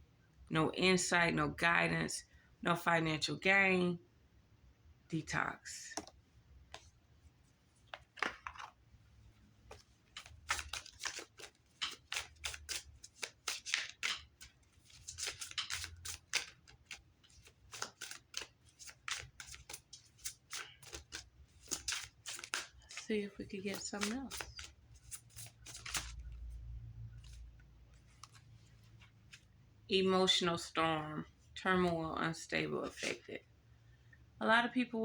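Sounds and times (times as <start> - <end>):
cards being shuffled: 7.8 - 8.8, 9.6 - 29.5, 32.8 - 33.3.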